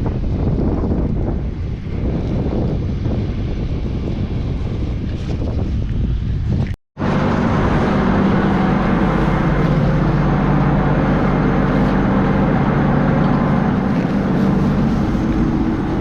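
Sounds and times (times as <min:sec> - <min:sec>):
even rushing noise: 0:07.0 - 0:16.0
motor droning: 0:07.0 - 0:16.0.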